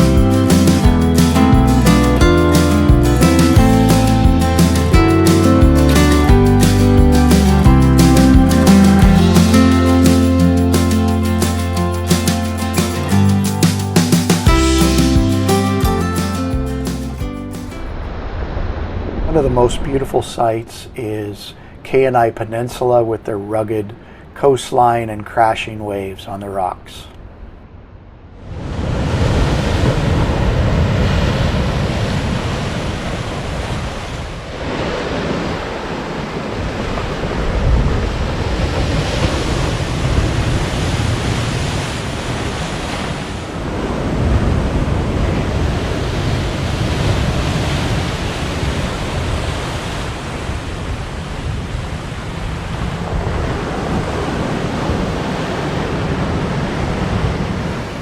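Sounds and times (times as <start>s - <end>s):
waves crashing on rocks: 0.0s - 22.1s, 28.5s - 58.0s
wind noise on microphone: 28.4s - 58.0s.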